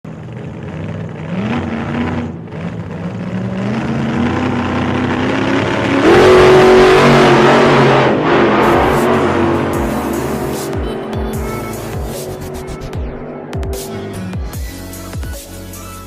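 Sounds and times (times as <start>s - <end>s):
engine accelerating hard: 0.0s - 15.9s.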